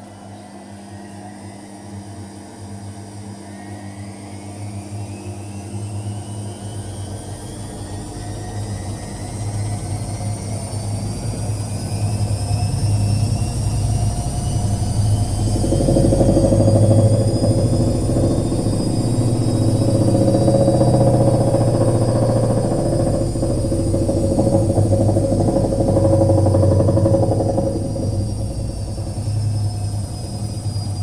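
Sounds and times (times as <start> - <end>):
washing machine motor whine: 0.0 - 31.0
low hum: 7.1 - 31.0.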